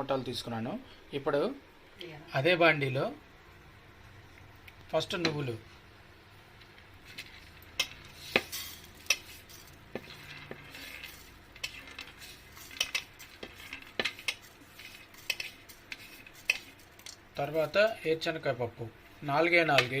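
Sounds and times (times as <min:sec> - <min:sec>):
metal spoon scraping a pan: 0:07.0 - 0:18.0.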